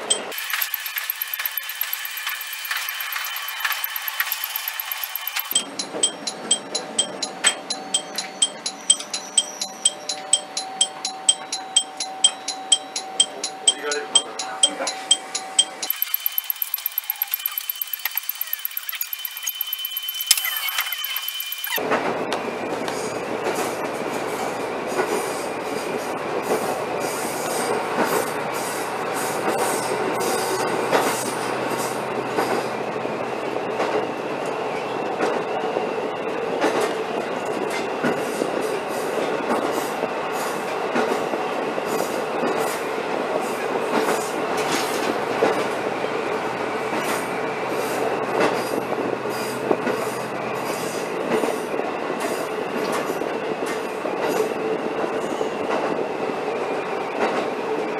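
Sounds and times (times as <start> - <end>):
constant whine: 0.0 - 9.0, 15.1 - 21.8
railcar rumble: 21.8 - 57.9.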